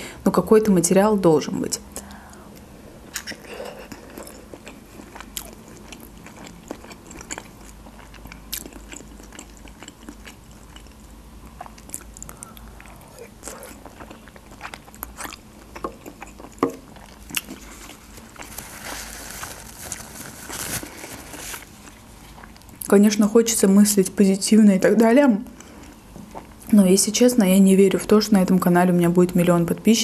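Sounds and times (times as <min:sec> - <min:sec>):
person chewing food: 0:02.1 - 0:22.9, 0:25.6 - 0:26.7.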